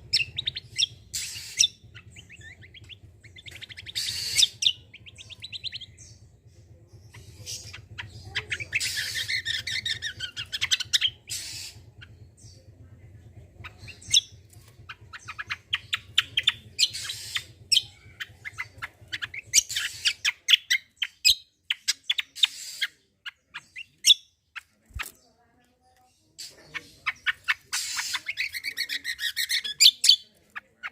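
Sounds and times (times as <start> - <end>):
bird chirping and rasping: 0.0 - 12.7, 13.6 - 30.9
low steady hum: 0.0 - 22.4.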